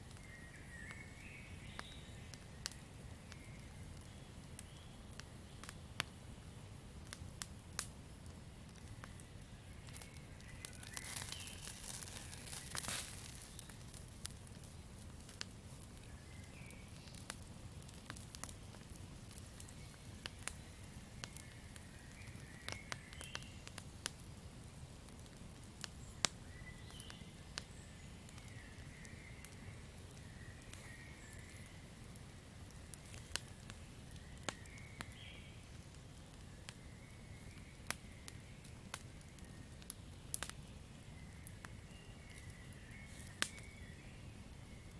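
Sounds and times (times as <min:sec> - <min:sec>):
campfire crackling and popping: 0:00.0 - 0:44.9.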